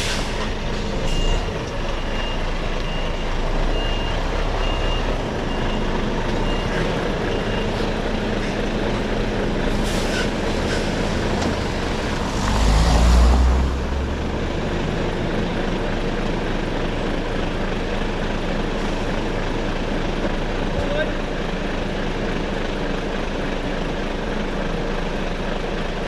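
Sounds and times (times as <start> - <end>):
diesel engine running: 0.0 - 26.0
reversing beep: 1.0 - 7.8.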